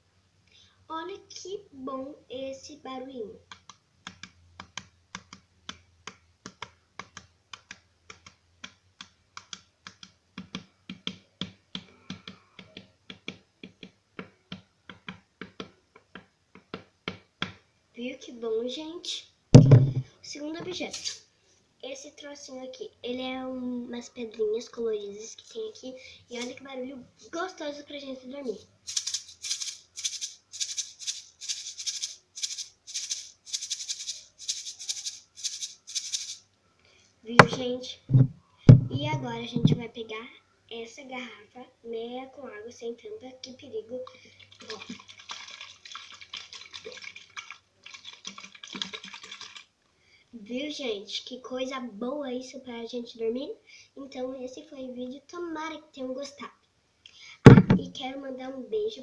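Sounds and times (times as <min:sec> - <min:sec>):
pebble shaker rattling: 0:19.6 - 0:20.0, 0:20.7 - 0:21.2, 0:26.4 - 0:26.6, 0:28.7 - 0:36.4.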